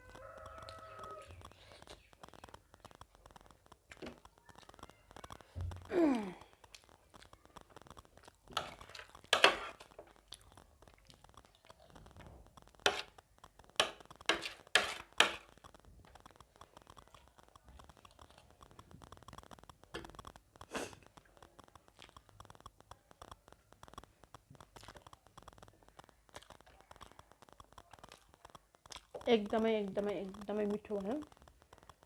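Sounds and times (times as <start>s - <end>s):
crunching bites and chewing: 0.0s - 29.3s.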